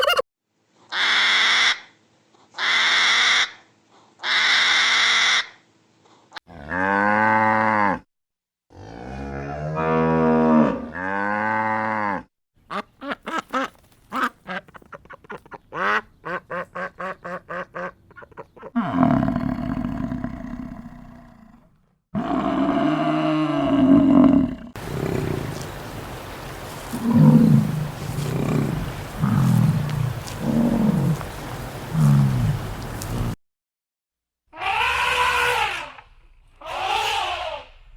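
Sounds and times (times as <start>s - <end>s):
farm animal calls: 0.0s - 0.2s, 24.2s - 33.4s.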